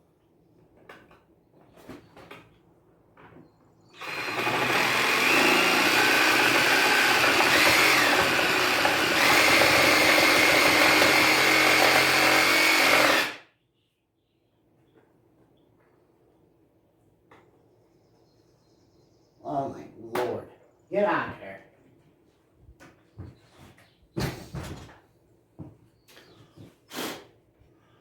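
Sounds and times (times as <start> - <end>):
power tool whining while cutting: 4.0 - 13.4.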